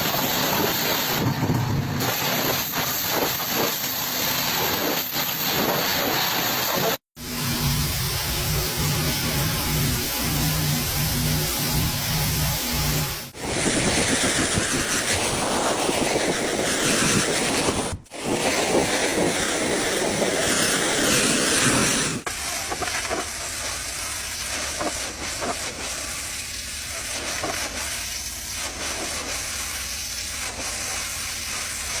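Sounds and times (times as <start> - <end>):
storm wind roaring: 11.8 - 22.2.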